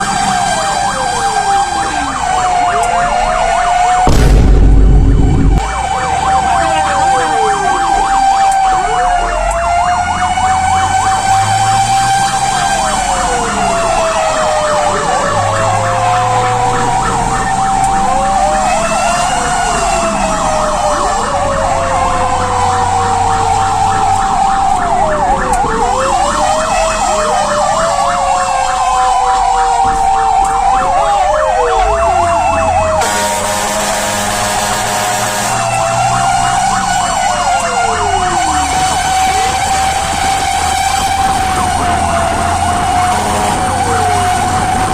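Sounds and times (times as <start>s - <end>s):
fire engine siren wailing: 0.0s - 44.9s
truck engine running: 4.0s - 6.8s
steady blaring tone: 4.0s - 7.8s.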